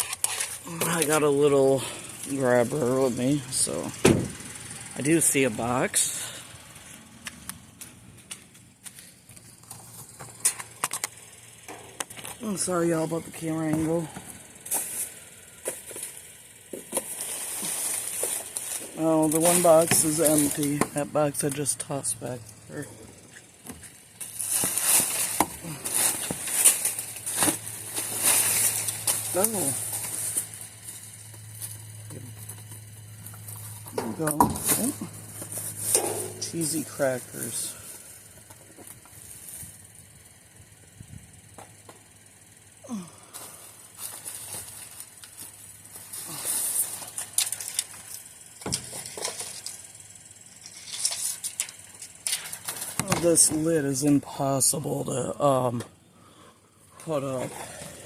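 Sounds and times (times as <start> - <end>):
steady low hum: 0.0 - 58.0
loud thump: 4.0 - 4.4
rubbish rustling and crinkling: 16.8 - 21.0, 23.2 - 39.8, 43.3 - 49.9.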